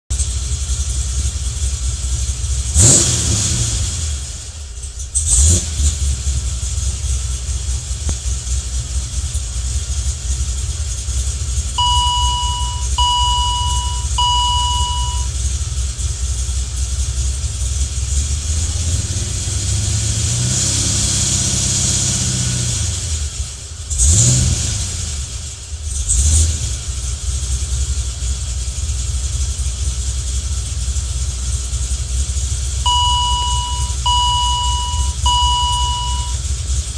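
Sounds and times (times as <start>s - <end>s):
car engine idling and revving: 0.1s - 36.9s
dashboard chime tones: 11.8s - 15.3s, 32.9s - 36.4s.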